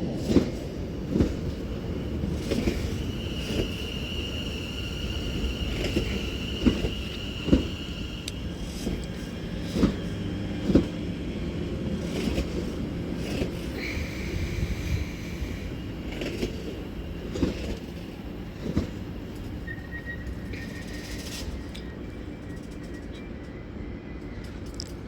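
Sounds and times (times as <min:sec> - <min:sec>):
electric train rumbling slowly: 0:00.0 - 0:25.0.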